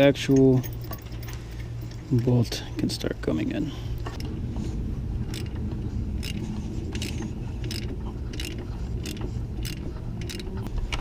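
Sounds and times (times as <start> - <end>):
steady low hum: 0.0 - 11.0
hand ratchet clicking: 5.3 - 5.6, 6.2 - 10.7.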